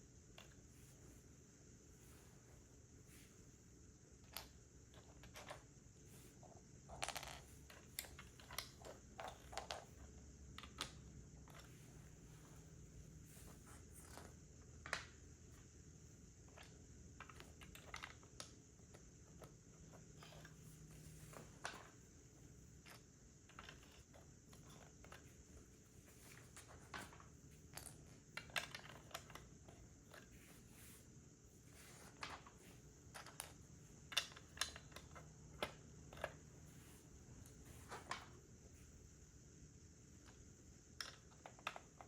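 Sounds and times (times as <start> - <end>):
plastic pieces clicking together: 32.0 - 36.4.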